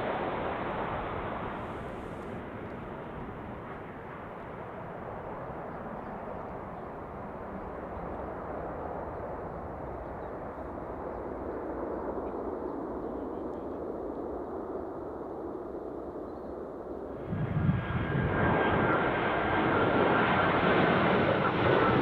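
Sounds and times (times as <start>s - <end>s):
distant jet engine rushing: 0.0s - 7.9s, 17.1s - 22.0s.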